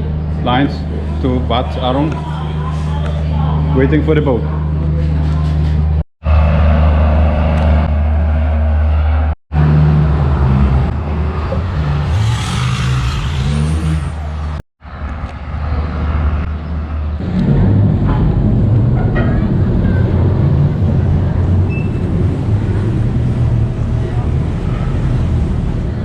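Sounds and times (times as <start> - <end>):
diesel boat engine rumbling: 0.0 - 26.0.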